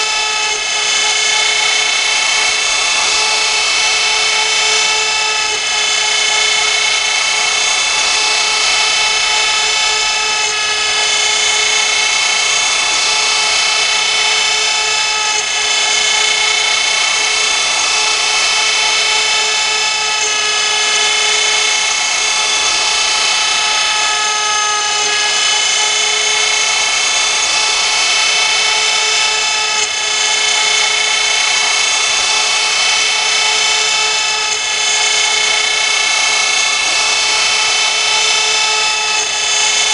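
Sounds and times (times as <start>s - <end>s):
router spindle whining while cutting: 0.0s - 39.9s.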